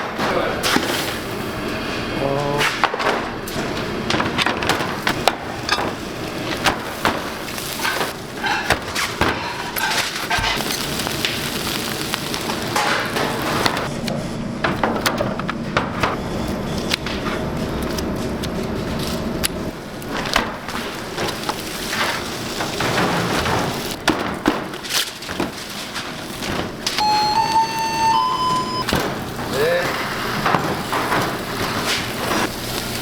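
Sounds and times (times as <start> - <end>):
busy background hum: 0.0 - 33.0
utensils and dishes clinking: 2.3 - 11.0.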